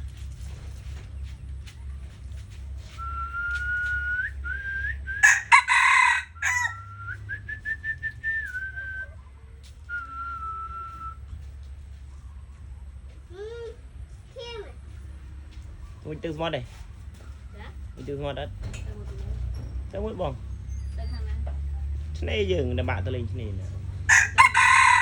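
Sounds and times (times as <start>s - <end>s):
rooster crowing: 5.2s - 7.2s, 24.1s - 25.0s.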